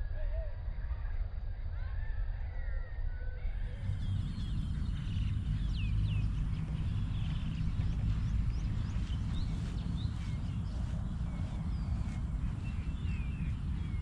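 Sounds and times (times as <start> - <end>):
low rumble: 3.5 - 14.0
birds chirping and whistling: 3.6 - 14.0.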